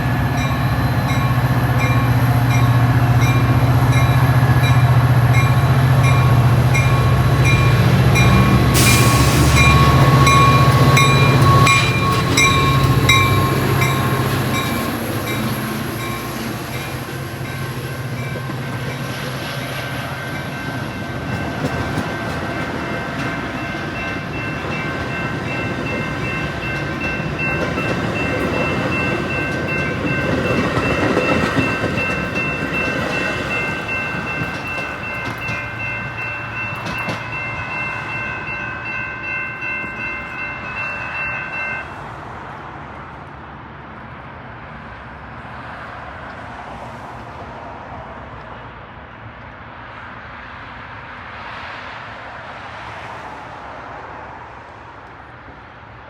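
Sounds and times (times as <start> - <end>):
train bell dinging: 0.0 - 42.2
diesel locomotive engine: 0.0 - 56.0.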